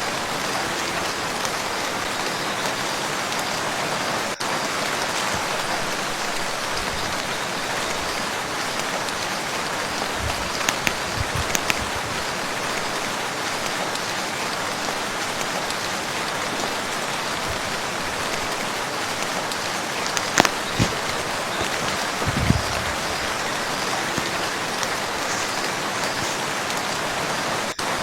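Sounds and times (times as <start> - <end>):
rain falling on a lake: 0.0 - 28.0.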